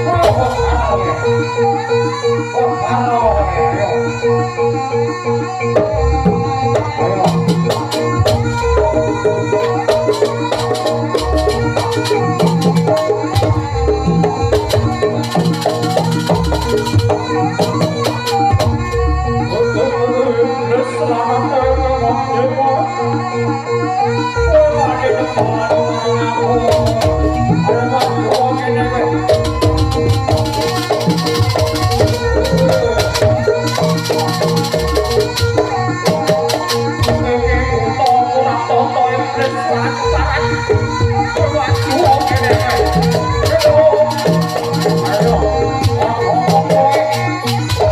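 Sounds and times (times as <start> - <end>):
ensemble music with drums: 0.0 - 22.2, 23.0 - 47.9
pitched melody line: 0.0 - 23.2, 24.2 - 47.9.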